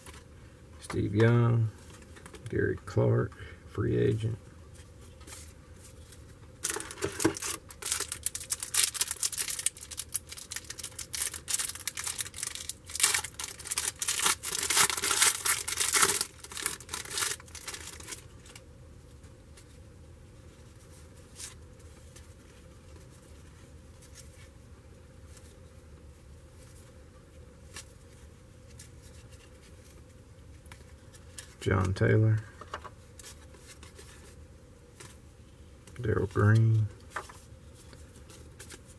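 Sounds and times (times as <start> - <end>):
card pack wrapper tearing and crinkling: 6.6 - 18.6.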